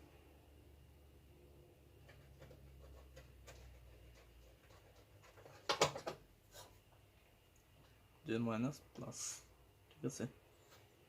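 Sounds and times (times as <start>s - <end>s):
scratching: 2.0s - 6.8s.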